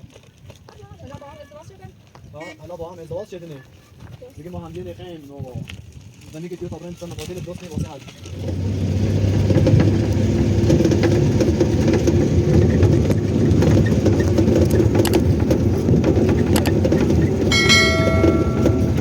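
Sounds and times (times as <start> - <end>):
vehicle rumbling and rattling: 8.2 - 19.0.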